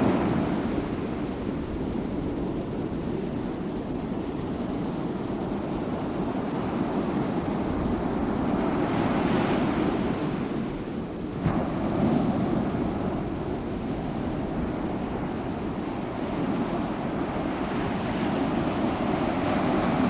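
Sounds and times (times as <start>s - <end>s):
sea waves surging: 0.0s - 20.0s.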